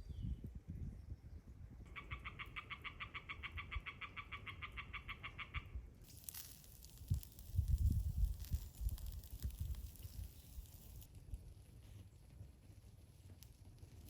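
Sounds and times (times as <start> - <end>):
rustle: 6.0 - 14.0.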